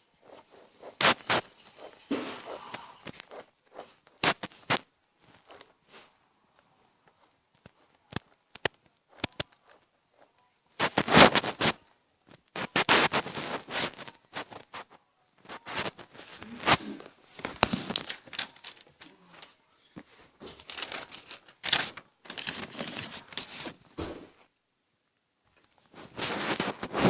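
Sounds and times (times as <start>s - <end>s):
pen scratching on paper: 0.0s - 5.9s, 7.1s - 11.8s.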